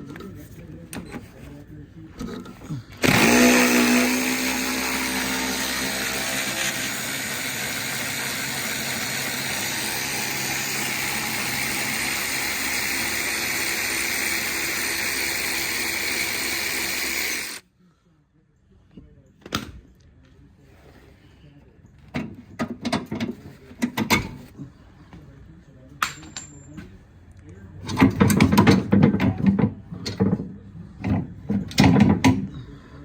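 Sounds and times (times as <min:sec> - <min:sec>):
power drill running: 0:03.0 - 0:17.6.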